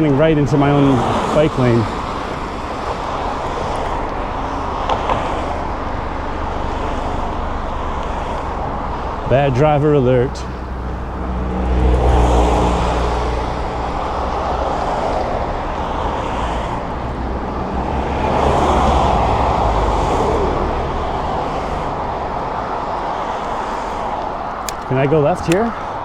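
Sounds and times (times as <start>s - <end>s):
car engines running: 0.0s - 26.0s
tyres rumbling: 0.0s - 26.0s.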